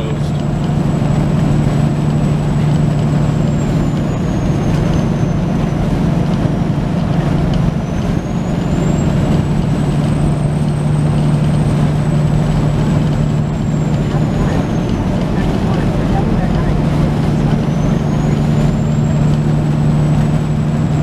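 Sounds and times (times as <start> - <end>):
diesel truck engine drone: 0.0 - 21.0.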